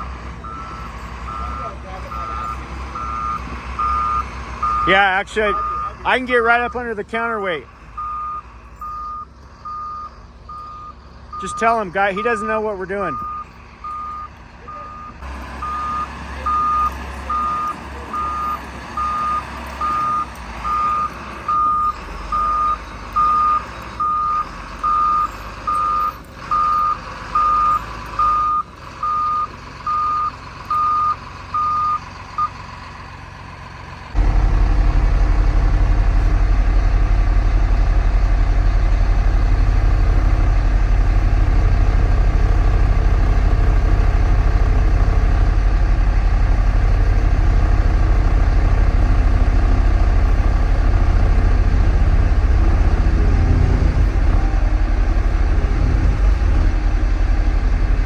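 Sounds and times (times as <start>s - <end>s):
backup alarm beeping: 0.5s - 6.9s, 8.0s - 32.6s
loud low rumble: 34.2s - 58.0s.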